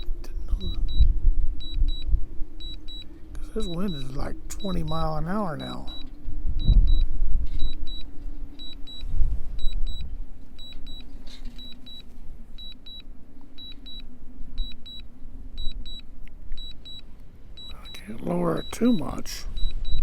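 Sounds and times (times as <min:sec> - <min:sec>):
wind buffeting microphone: 0:00.0 - 0:11.3
steady low hum: 0:00.0 - 0:20.0
double beep alert: 0:00.6 - 0:03.0, 0:03.6 - 0:07.0, 0:17.6 - 0:20.0.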